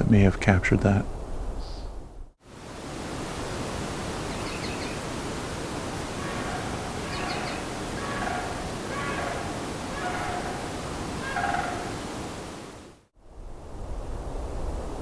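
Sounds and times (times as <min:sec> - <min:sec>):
steady background hiss: 0:00.0 - 0:15.0
crane calling: 0:05.7 - 0:12.2.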